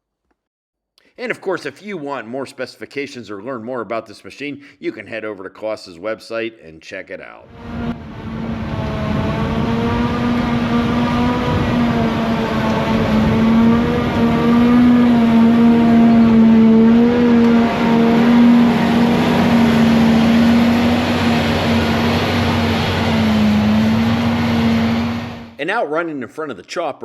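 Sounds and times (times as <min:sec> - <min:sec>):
crop rushing through machine: 0:07.6 - 0:25.6
forage harvester engine hum: 0:07.6 - 0:25.6.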